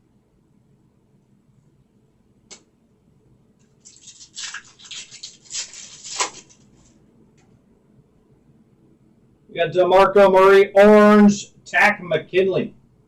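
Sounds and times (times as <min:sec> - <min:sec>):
click: 0:02.5 - 0:02.7
sharp snap: 0:02.5 - 0:02.7
foil wrapper crinkling: 0:03.8 - 0:07.0.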